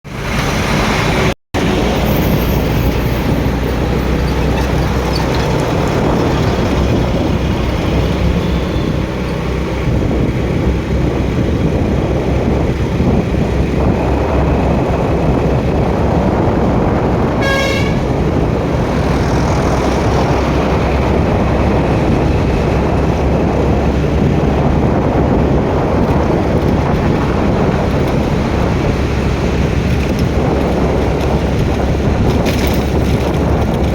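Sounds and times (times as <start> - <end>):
city road traffic: 0.0 - 33.9
vehicle horn toot: 17.3 - 18.3.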